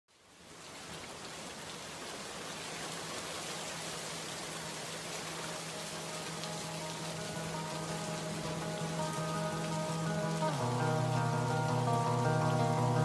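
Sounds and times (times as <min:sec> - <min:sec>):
rain hissing: 0:01.5 - 0:13.0
low steady hum: 0:04.8 - 0:13.0.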